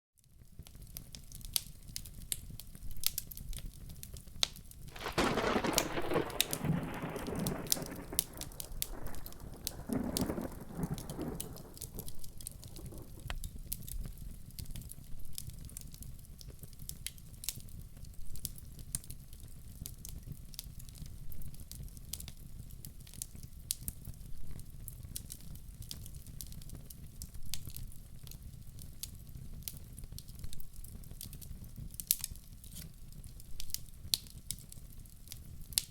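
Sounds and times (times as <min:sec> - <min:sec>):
wood fire crackling: 0:00.6 - 0:35.9
steady rain: 0:04.9 - 0:13.9
thunder rolling: 0:05.0 - 0:13.3.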